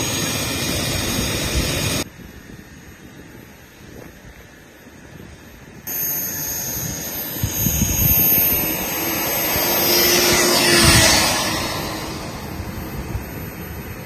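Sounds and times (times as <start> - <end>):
turboprop engines whistling: 0.0 - 2.0, 5.9 - 14.0.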